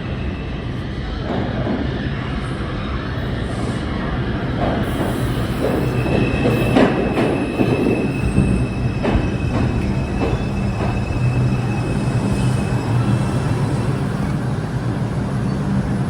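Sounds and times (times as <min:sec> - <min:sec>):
subway train rumbling: 0:00.0 - 0:16.0
high wheel squeal: 0:04.9 - 0:16.0.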